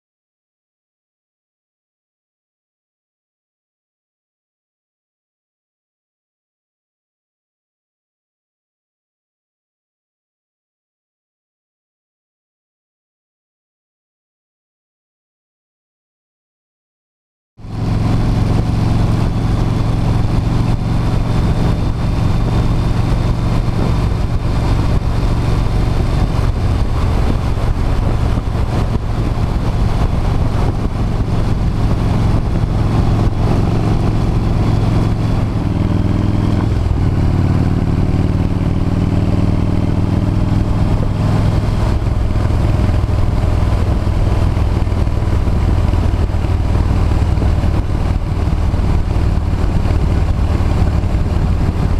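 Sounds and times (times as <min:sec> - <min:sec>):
motorcycle engine running: 0:17.6 - 0:51.9.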